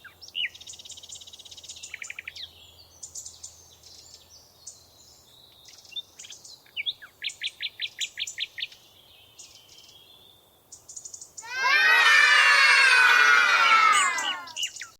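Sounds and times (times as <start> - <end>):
bird chirping: 13.8 - 14.9.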